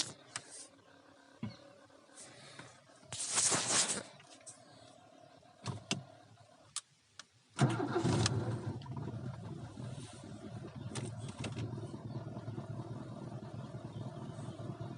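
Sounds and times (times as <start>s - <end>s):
car engine starting and idling: 4.1s - 14.9s.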